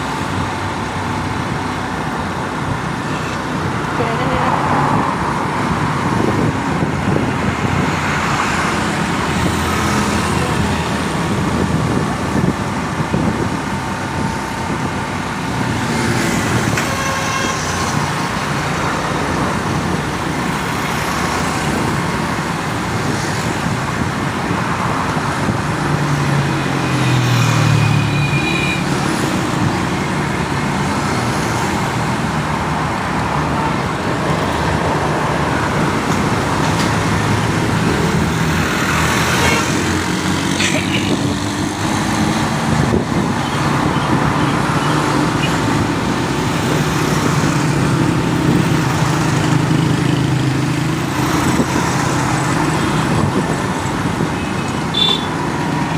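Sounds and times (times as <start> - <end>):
road traffic: 0.0 - 55.9
car horn toots: 54.9 - 55.3.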